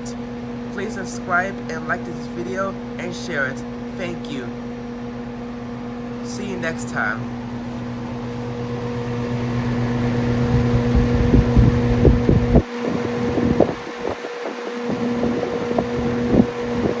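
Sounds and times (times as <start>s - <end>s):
air conditioner humming: 0.0s - 17.0s
wind rumble on microphone: 10.2s - 17.0s.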